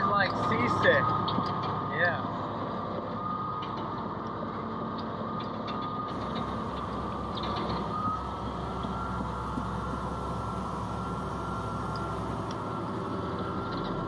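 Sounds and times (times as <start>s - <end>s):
bulldozer engine drone: 0.0s - 14.0s
high tone: 6.1s - 14.0s.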